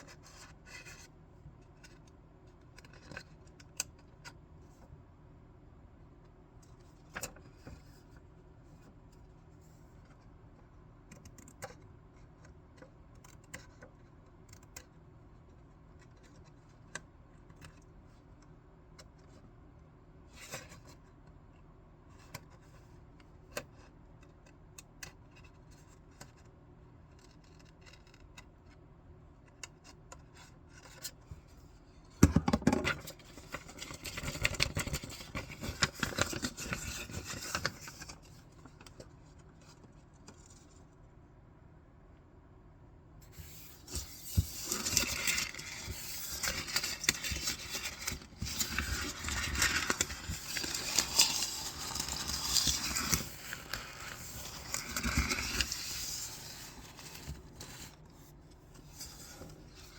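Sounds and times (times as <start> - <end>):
paper crackling: 33.0 - 40.8, 43.3 - 58.0
scissors cutting paper: 43.9 - 57.4.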